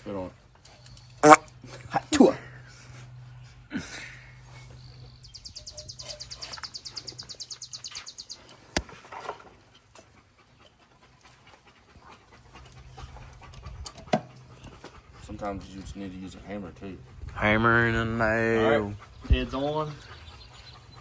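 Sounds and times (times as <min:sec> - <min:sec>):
dog panting: 0:04.4 - 0:21.0.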